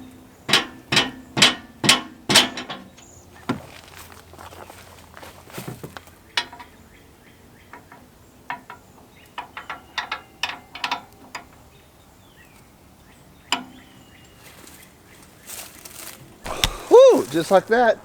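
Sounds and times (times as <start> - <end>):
hand tools clicking on metal: 16.5 - 17.9.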